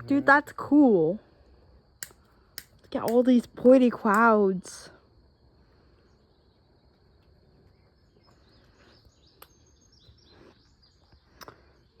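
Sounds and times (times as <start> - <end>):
sharp ticks: 2.0 - 4.4
faint bird chirps: 5.9 - 12.0.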